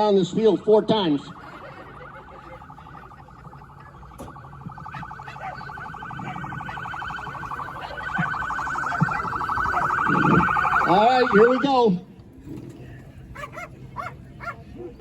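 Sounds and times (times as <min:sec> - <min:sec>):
siren warbling: 0:00.0 - 0:11.9.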